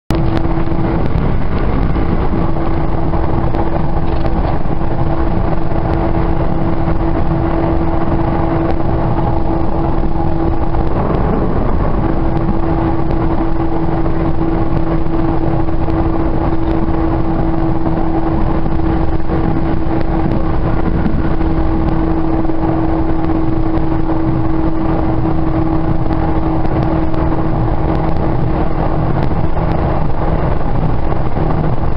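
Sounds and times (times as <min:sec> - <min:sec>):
constant humming tone: 0:00.1 - 0:31.9
train rumbling: 0:00.1 - 0:31.9.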